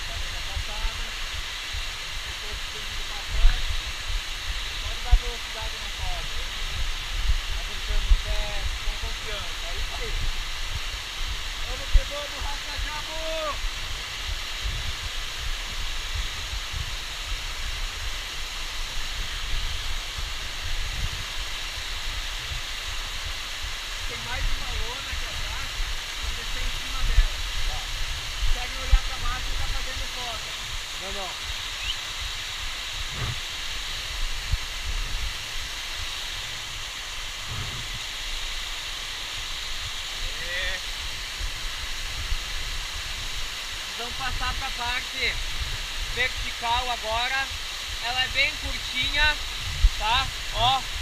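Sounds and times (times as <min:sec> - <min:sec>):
waterfall rushing: 0:00.0 - 0:51.0
low bumps on microphone: 0:33.0 - 0:33.4, 0:37.4 - 0:38.0.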